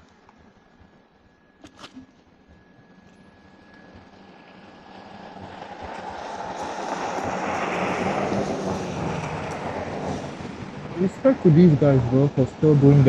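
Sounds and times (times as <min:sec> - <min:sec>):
tyres on wet slushy road: 0:02.9 - 0:13.0.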